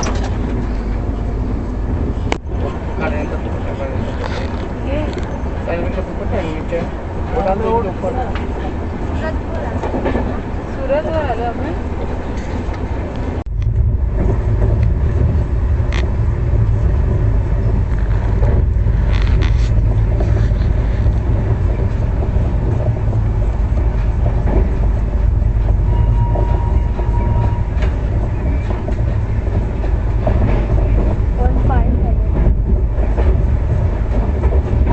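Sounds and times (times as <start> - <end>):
train wheels rumbling: 0.0 - 34.9
wheels clacking over rails: 1.9 - 34.9.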